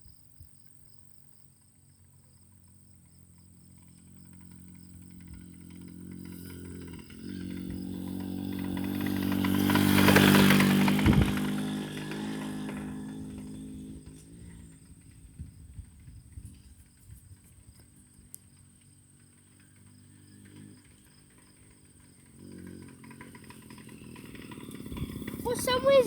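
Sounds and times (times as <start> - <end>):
moped engine passing by: 1.7 - 26.0.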